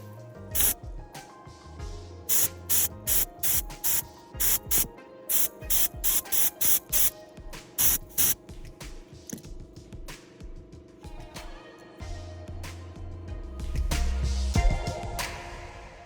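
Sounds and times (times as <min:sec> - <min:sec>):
background music: 0:00.0 - 0:16.0
hissing spray bursts: 0:00.6 - 0:00.8, 0:02.3 - 0:07.2, 0:07.8 - 0:08.4.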